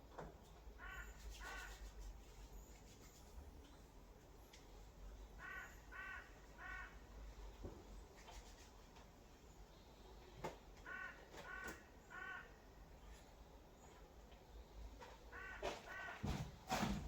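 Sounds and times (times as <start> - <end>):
faint bird calls: 0.8 - 3.1, 5.2 - 7.6, 9.7 - 16.4.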